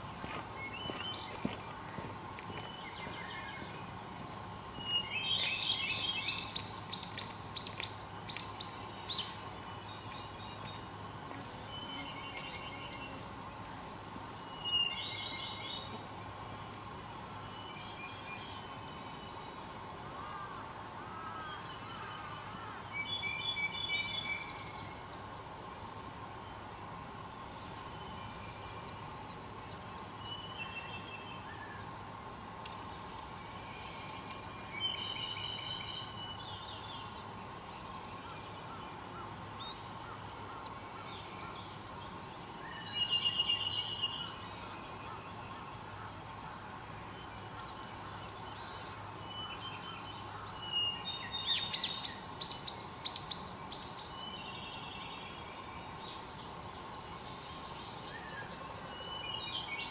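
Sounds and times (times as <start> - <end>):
wild birds singing and calling: 32.9 - 59.9.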